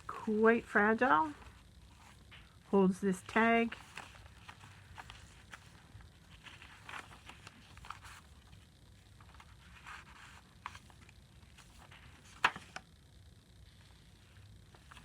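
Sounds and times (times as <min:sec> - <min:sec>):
paper pages rustling: 0:01.2 - 0:02.5, 0:03.1 - 0:12.9, 0:13.7 - 0:15.0.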